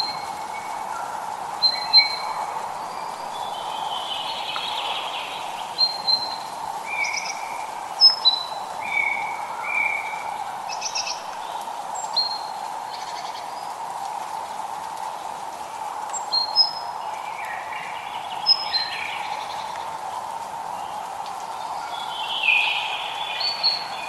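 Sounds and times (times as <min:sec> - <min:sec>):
light rain hiss: 0:00.0 - 0:24.0
birds whistling and chirping: 0:05.8 - 0:11.2.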